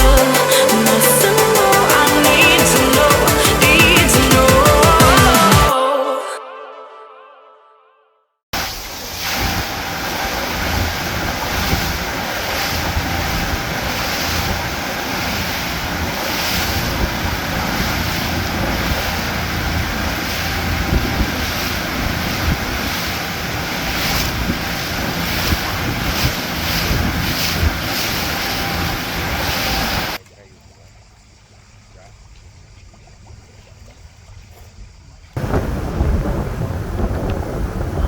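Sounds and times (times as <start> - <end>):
rushing water: 0.0 - 5.8, 8.6 - 34.2, 35.4 - 38.0
wind buffeting the microphone: 9.3 - 30.2, 34.8 - 38.0.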